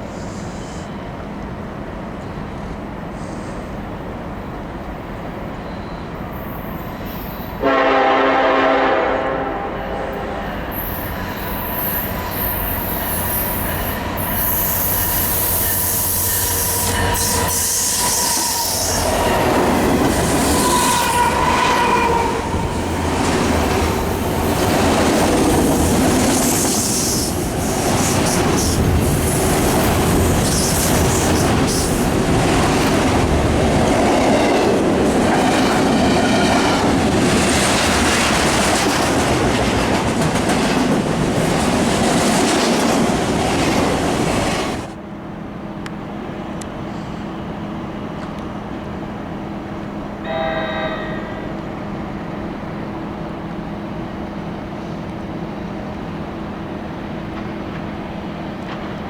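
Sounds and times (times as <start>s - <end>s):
train passing: 0.0s - 59.0s
wheel squeal: 10.8s - 22.4s.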